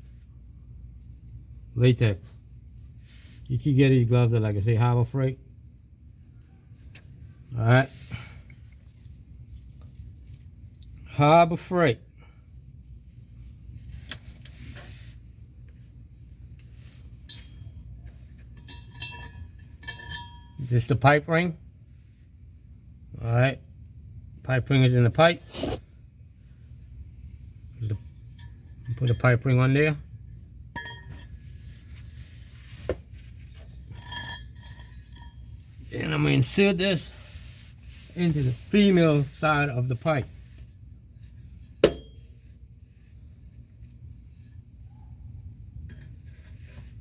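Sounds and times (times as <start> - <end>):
high insect trill: 0.0 - 47.0
light metallic clinks: 17.0 - 21.0, 30.7 - 31.7, 33.1 - 35.8, 41.3 - 42.5
knock on exhaust pipe parts: 41.8 - 42.2.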